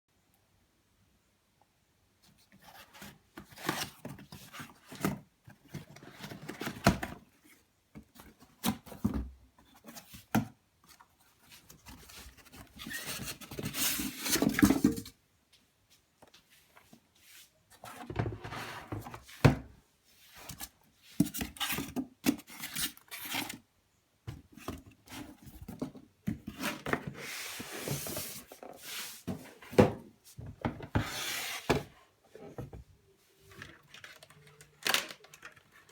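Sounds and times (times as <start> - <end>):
cardboard box rustling and scraping: 24.6 - 29.9, 30.8 - 32.7.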